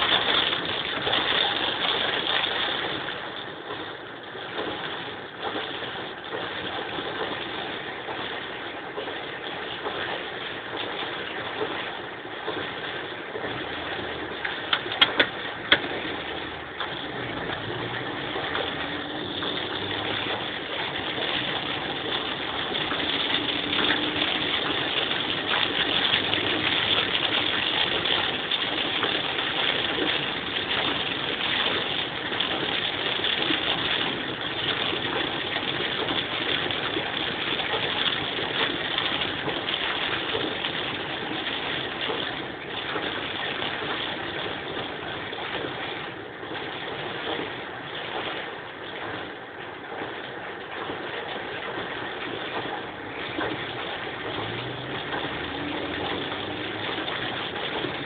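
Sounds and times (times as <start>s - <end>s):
tyres on flooded road: 0.0s - 58.0s
heavy rain hissing: 13.0s - 45.4s.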